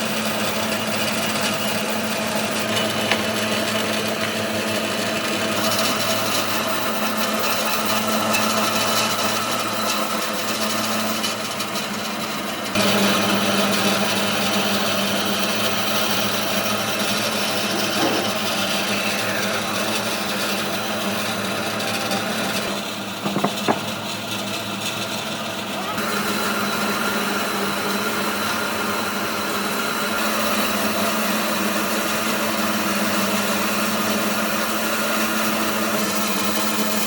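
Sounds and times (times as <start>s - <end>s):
power tool working wood: 0.0s - 24.6s.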